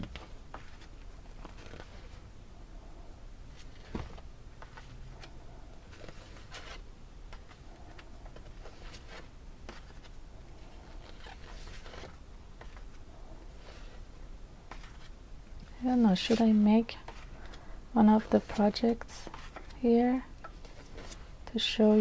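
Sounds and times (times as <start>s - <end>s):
paper and plastic rustling: 0.0s - 2.3s, 3.4s - 22.0s.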